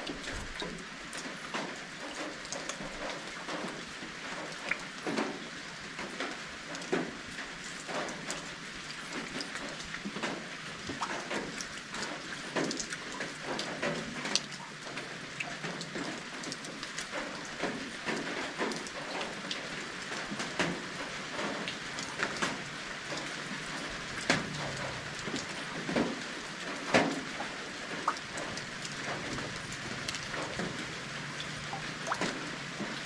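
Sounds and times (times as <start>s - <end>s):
rain pattering: 0.0s - 33.0s.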